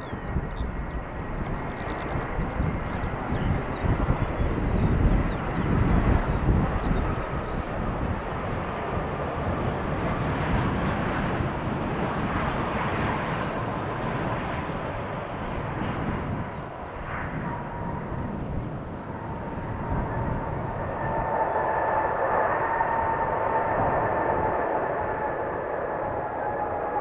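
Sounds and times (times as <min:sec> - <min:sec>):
jet engine rumble: 0:00.0 - 0:27.0
jet engine whine: 0:00.0 - 0:27.0.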